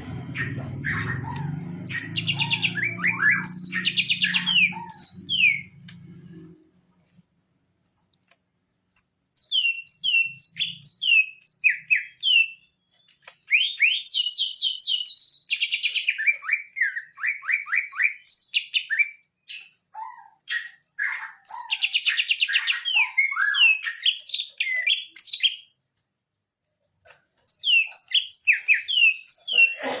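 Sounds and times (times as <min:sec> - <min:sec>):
bird whistling and trilling: 0:00.4 - 0:05.7, 0:09.4 - 0:12.6, 0:13.3 - 0:25.7, 0:27.5 - 0:29.8.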